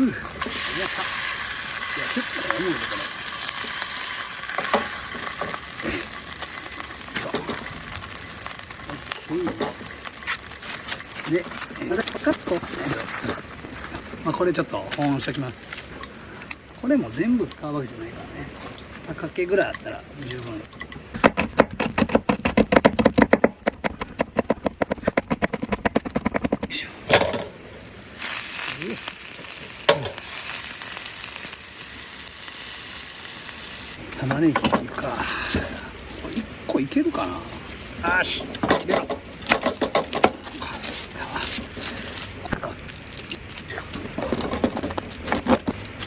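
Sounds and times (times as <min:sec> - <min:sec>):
food sizzling in a pan: 0:00.0 - 0:13.6, 0:26.7 - 0:38.4.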